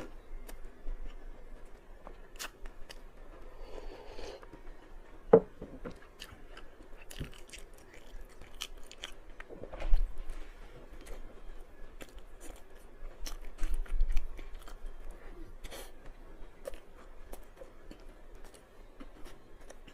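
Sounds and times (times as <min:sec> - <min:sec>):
person chewing crunchy food: 0:02.0 - 0:04.6, 0:05.9 - 0:10.1, 0:12.0 - 0:19.9.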